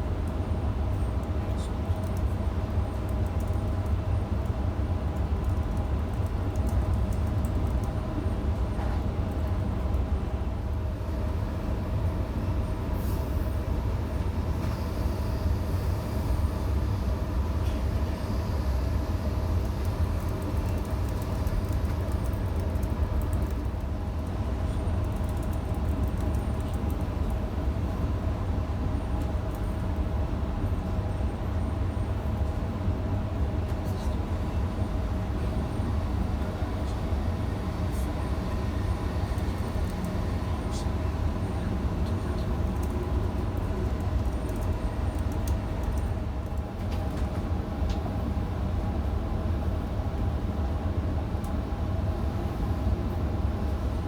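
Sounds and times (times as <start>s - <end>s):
train rumble inside carriage: 0.0s - 54.0s.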